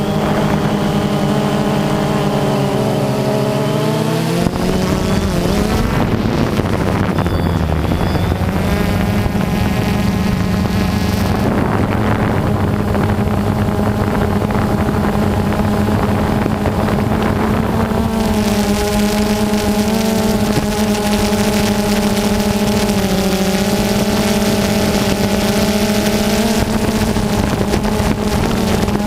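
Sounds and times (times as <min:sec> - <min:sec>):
jet ski engine running: 0:00.0 - 0:29.0
wind on microphone: 0:00.0 - 0:29.0.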